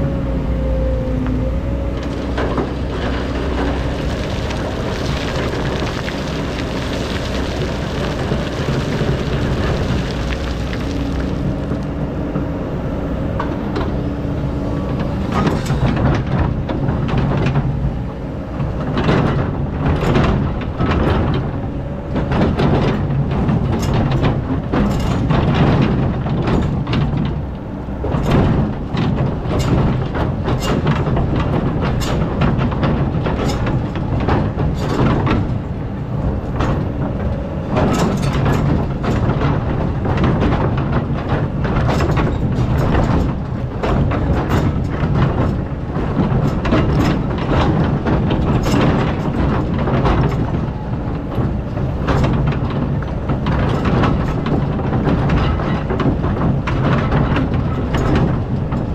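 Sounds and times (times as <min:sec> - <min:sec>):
excavator diesel engine running: 0:00.0 - 0:58.9
bucket clanking and scraping sand: 0:02.0 - 0:12.0, 0:37.8 - 0:58.9.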